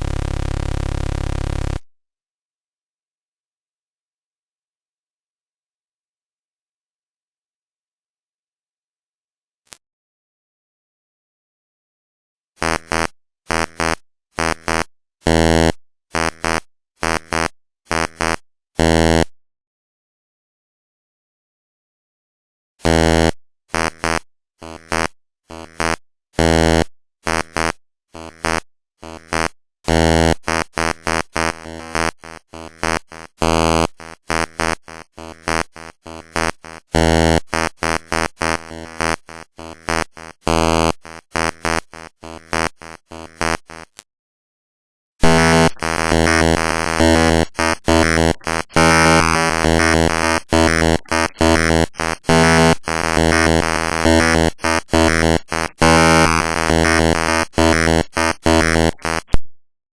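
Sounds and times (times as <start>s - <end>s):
harsh buzzing tones: 0.0s - 1.9s, 12.6s - 19.3s, 22.8s - 44.1s, 45.2s - 59.4s.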